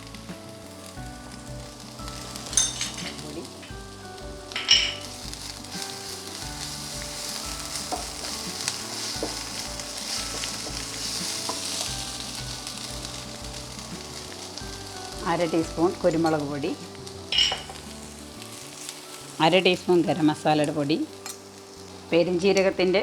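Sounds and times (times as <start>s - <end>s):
masala sizzling in oil: 0.0s - 23.0s
utensil clinking: 2.2s - 3.8s, 15.3s - 17.8s.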